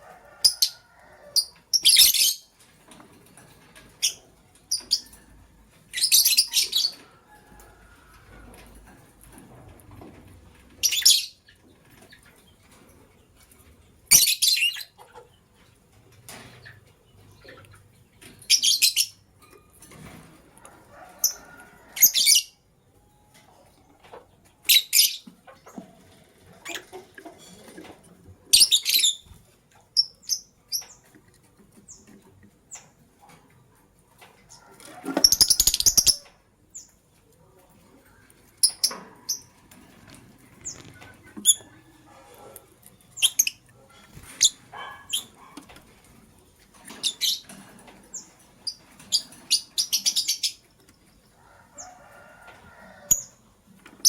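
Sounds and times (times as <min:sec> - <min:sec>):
lovebirds chirping: 0:40.6 - 0:45.6.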